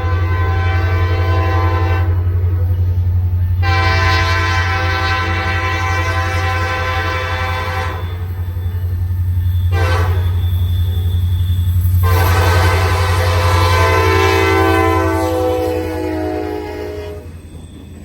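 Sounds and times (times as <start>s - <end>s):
locomotive air horn blasts: 0.0s - 2.6s, 3.6s - 8.4s, 9.7s - 10.6s, 12.0s - 17.4s
train rumbling: 0.0s - 18.0s.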